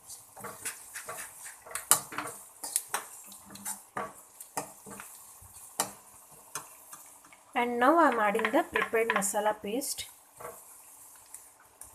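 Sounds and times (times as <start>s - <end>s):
spoon scraping in a pan: 0.0s - 7.4s, 10.4s - 11.4s
onions frying in oil: 0.0s - 11.9s.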